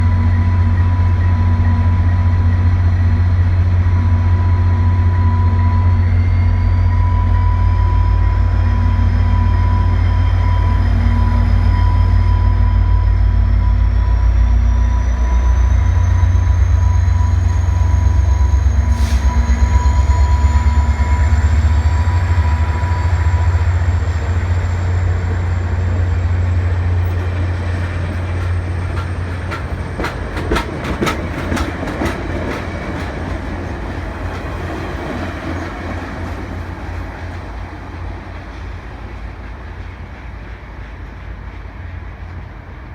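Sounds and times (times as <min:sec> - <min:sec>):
diesel locomotive rumble: 0:00.0 - 0:42.9
train wheels clacking over rail joints: 0:27.0 - 0:42.7.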